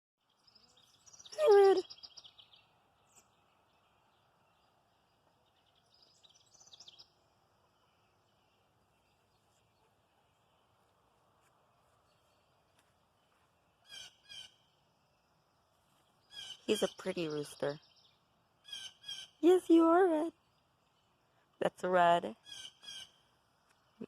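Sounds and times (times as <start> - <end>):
faint steady background noise: 0.2 - 24.0
high bird chirps: 0.3 - 4.8, 16.2 - 19.5, 22.4 - 23.3.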